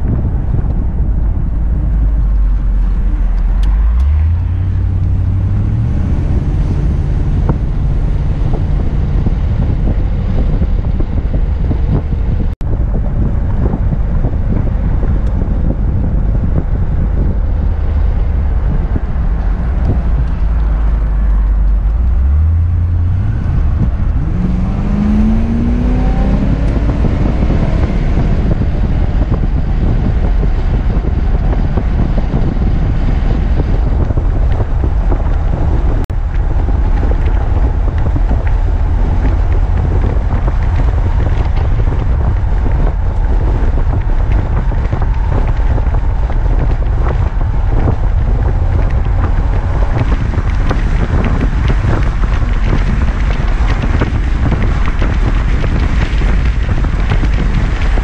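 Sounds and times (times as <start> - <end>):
car engine accelerating: 0.0 - 58.0
wind and road noise: 0.0 - 58.0.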